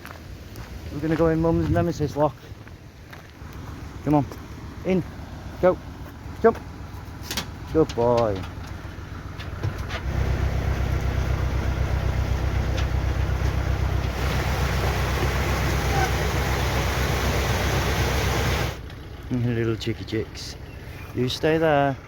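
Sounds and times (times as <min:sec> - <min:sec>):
boat engine running: 0:03.4 - 0:22.0
rushing hiss: 0:14.0 - 0:18.8.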